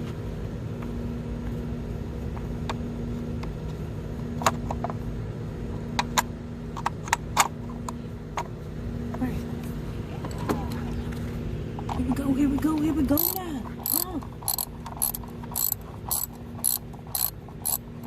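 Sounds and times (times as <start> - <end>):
low mechanical hum: 0.0 - 18.0
tools clicking and clinking: 13.2 - 17.8.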